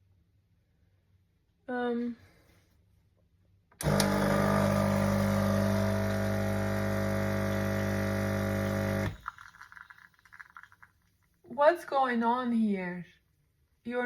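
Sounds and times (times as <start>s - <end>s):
coffee machine pump humming: 3.8s - 10.7s.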